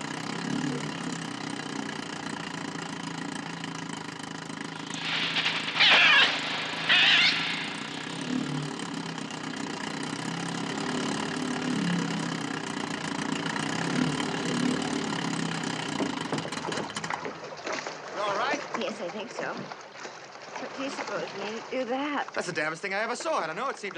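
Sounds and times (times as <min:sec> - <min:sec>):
motorboat engine hum: 0:00.0 - 0:23.9
seagull shrieks: 0:04.8 - 0:08.3.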